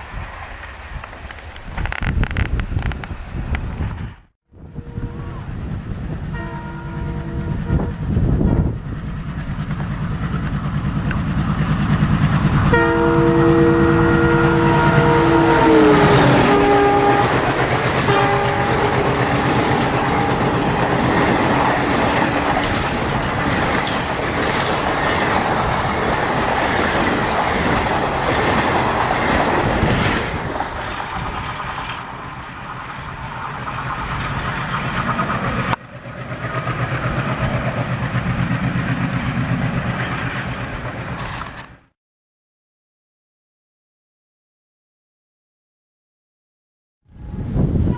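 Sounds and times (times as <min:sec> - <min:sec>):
multi-tone train horn: 0:04.6 - 0:08.8, 0:12.6 - 0:23.0, 0:47.2 - 0:47.9
diesel locomotive engine throb: 0:04.6 - 0:41.7
train wheels rattling: 0:14.8 - 0:41.8.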